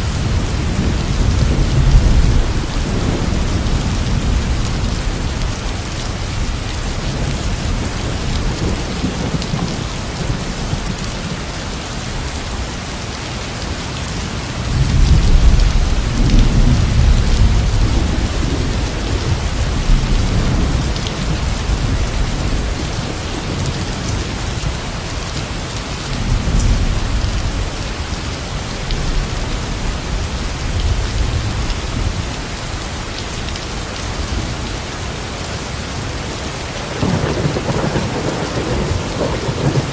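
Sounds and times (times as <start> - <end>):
steady rain: 0.0 - 39.9
thunder rolling: 36.9 - 39.9.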